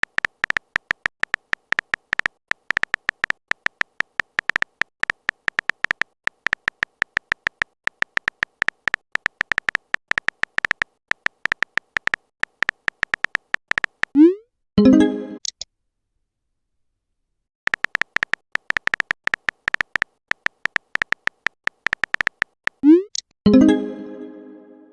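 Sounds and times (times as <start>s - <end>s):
phone typing clicks: 0.0s - 14.2s, 17.7s - 23.2s
rising pop notification: 14.2s - 15.4s, 22.8s - 24.3s.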